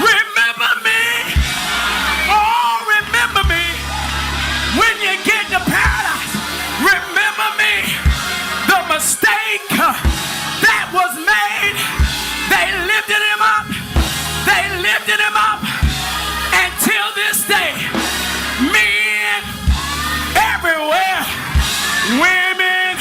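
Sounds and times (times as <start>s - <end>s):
person singing: 0.0s - 23.0s
keyboard bass notes: 0.9s - 23.0s
drum hits: 1.3s - 2.2s, 3.3s - 4.1s, 4.7s - 7.1s, 8.1s - 8.8s.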